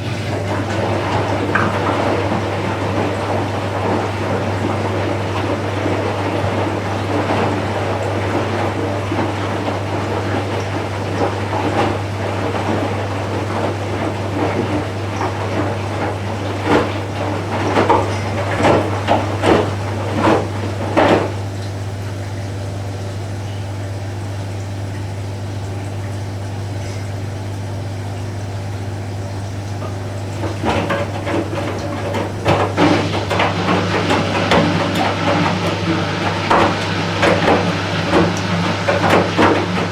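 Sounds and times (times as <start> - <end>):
washing machine running: 0.0 - 39.9
water swishing: 0.0 - 39.9
drum clunks and clicks: 13.7 - 21.6, 29.8 - 39.9.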